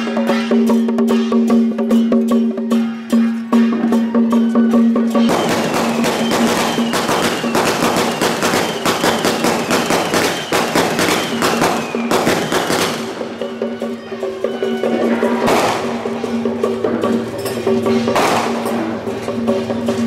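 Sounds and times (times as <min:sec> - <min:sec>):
wood block beat: 0:00.0 - 0:20.0
crashing percussion strikes: 0:05.2 - 0:13.8, 0:15.4 - 0:20.0.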